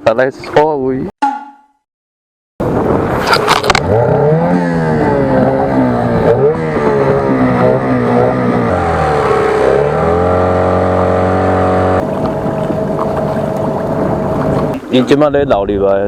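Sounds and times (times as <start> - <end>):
engine revving: 3.2 - 14.8.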